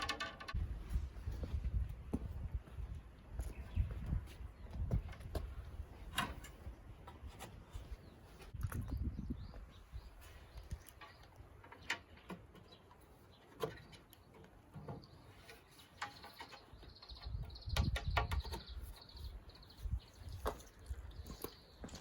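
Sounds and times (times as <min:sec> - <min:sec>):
small bird chirping: 0:07.7 - 0:22.0.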